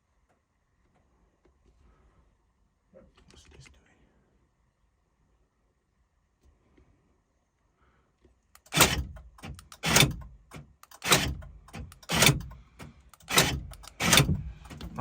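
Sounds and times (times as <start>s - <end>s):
car door locks clunking: 8.6s - 15.0s.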